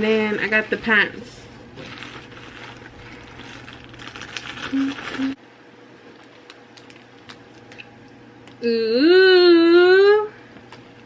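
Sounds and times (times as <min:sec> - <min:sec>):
packaging rustling and crinkling: 0:01.8 - 0:05.4.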